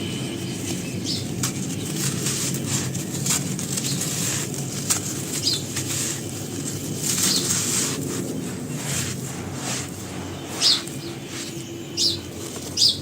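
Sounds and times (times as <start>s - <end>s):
brittle material crunching: 0.4s - 12.8s.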